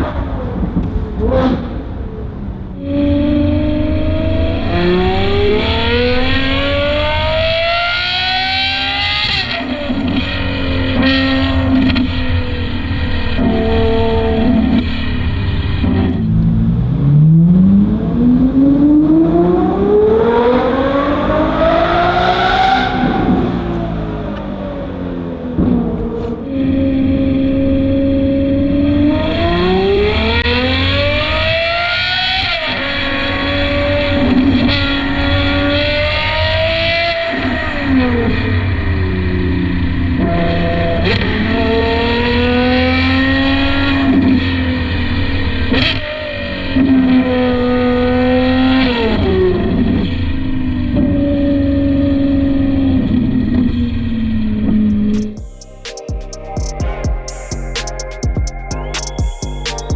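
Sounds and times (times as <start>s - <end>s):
car engine accelerating hard: 0.0s - 55.8s
exhaust cracks: 5.0s - 28.1s, 53.1s - 59.9s.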